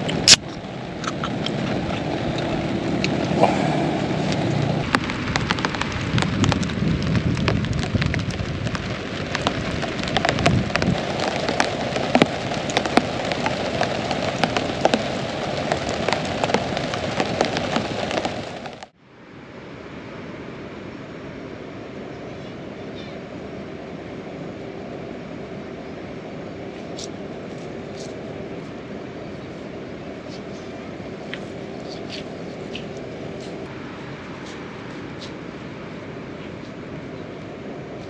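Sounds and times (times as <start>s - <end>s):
heavy rain falling: 0.0s - 18.9s.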